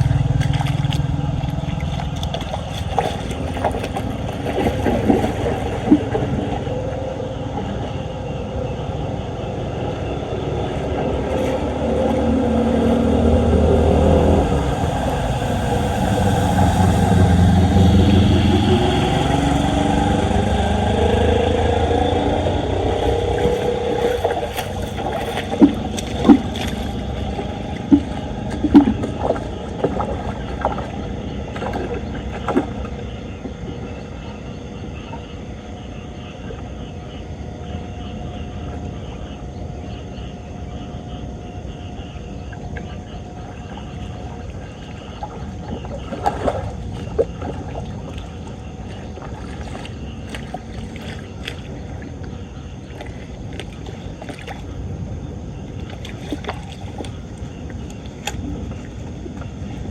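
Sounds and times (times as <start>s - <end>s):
floodwater rushing down a drain: 0.0s - 35.4s, 42.4s - 59.9s.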